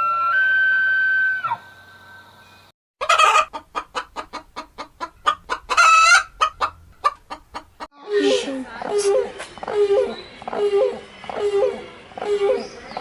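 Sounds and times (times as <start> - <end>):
chicken squawk: 3.0 - 7.8
chicken clucking: 3.0 - 7.9.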